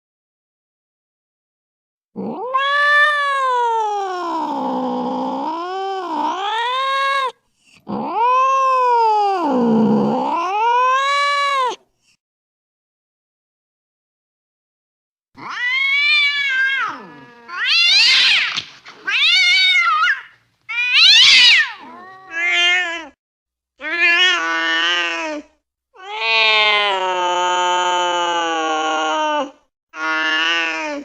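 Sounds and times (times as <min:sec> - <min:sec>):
angry cat yowling: 0:02.2 - 0:11.8, 0:15.4 - 0:23.2, 0:26.0 - 0:30.8.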